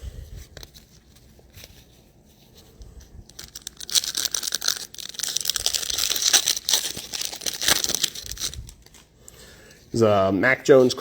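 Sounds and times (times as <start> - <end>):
foil wrapper tearing and crinkling: 3.3 - 9.0.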